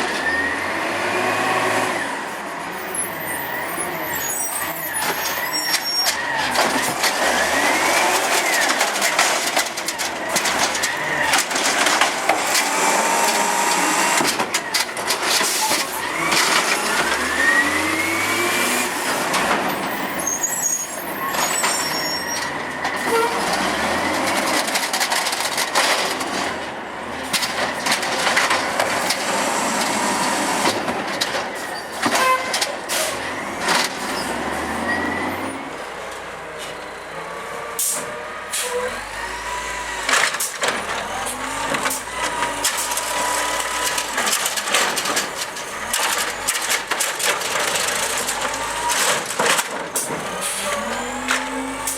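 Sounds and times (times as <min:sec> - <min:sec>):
garbage truck engine revving: 0:03.5 - 0:36.3, 0:36.9 - 0:51.9.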